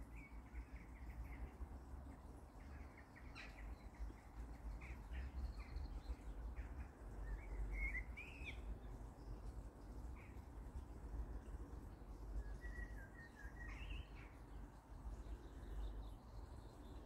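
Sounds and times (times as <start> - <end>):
low steady rumble: 0.0 - 17.0
songbirds chirping: 0.0 - 17.0.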